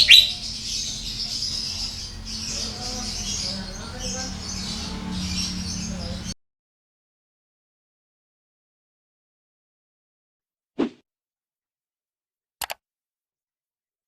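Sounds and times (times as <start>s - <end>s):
caged birds chirping: 0.0s - 6.4s
low steady hum: 0.0s - 6.4s.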